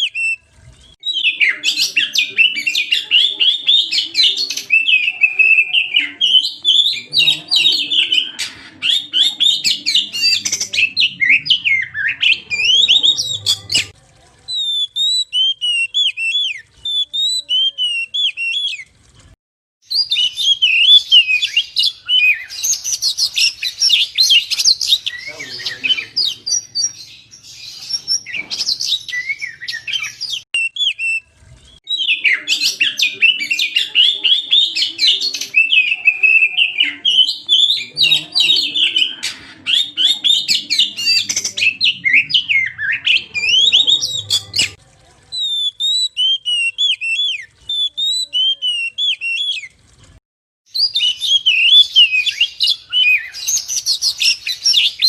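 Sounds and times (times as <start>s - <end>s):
magpie-robin whistled song: 1.0s - 13.9s, 14.5s - 18.8s, 19.9s - 44.8s, 45.4s - 49.7s, 50.7s - 55.0s.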